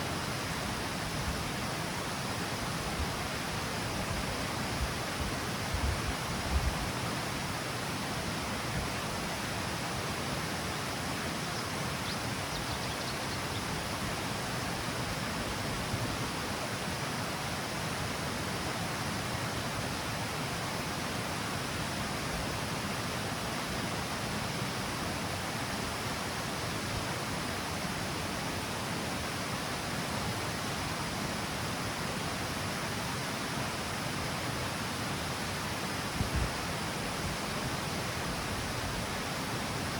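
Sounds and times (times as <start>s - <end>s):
river water rushing over cascade: 0.0s - 39.9s.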